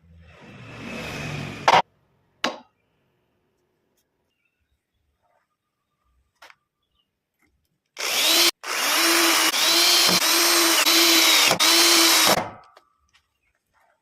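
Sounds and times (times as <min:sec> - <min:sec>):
power tool whining: 0:08.0 - 0:12.4.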